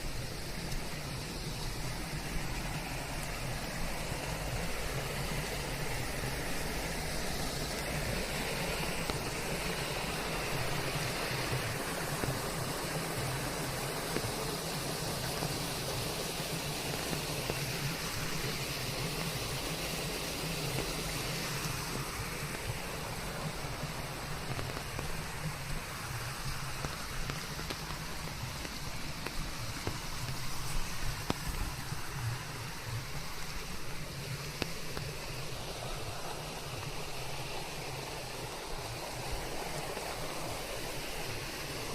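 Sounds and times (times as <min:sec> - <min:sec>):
steady rain: 0:00.0 - 0:41.9
white noise: 0:00.0 - 0:41.9.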